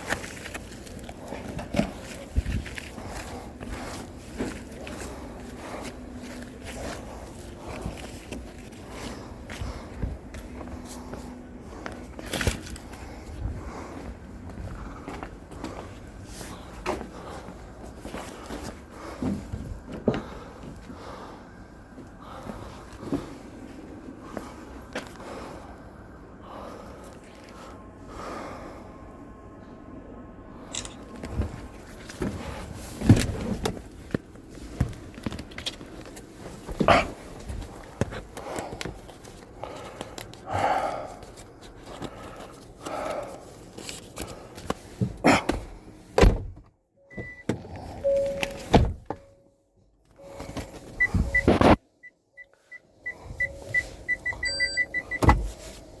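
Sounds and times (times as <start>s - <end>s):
rustling and breath-like noise: 0.0s - 46.2s, 50.1s - 56.0s
short high beeps: 48.0s - 48.7s, 51.0s - 51.8s, 52.4s - 55.3s.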